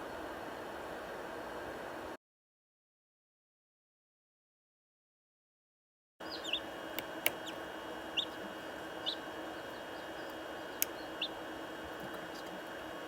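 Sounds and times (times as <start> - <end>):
chicks peeping: 6.2 - 13.0
sharp clicks: 6.9 - 7.6.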